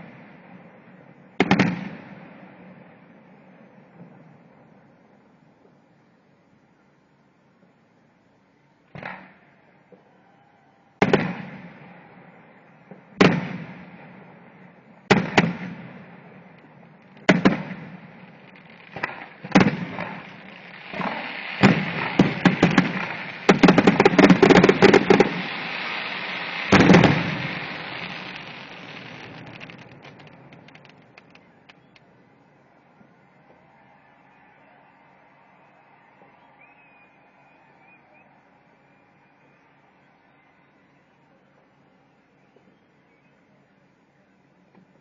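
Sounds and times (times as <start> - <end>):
firework crackling: 13.0 - 32.1
firework shells bursting: 16.5 - 32.1.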